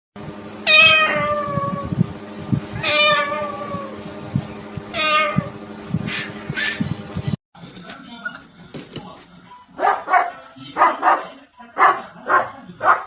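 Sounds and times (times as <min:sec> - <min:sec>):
cat meowing: 0:00.7 - 0:01.9, 0:02.8 - 0:04.0, 0:04.9 - 0:05.5.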